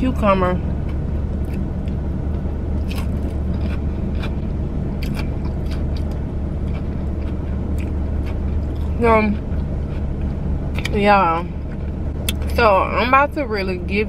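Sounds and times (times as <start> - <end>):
car engine hum: 0.0 - 14.0
crunchy chewing: 0.7 - 11.0.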